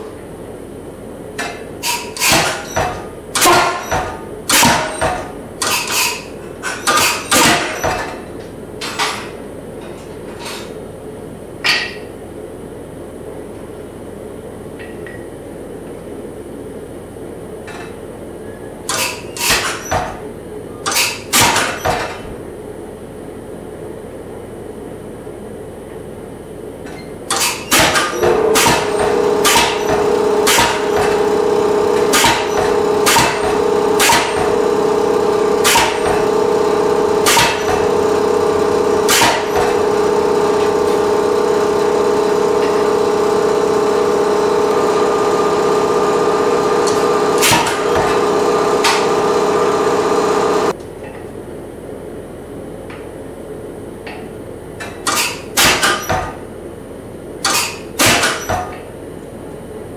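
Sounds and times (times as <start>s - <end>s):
power hammer striking hot steel: 1.4s - 8.1s, 27.3s - 50.7s
steady machine hum: 22.3s - 54.8s.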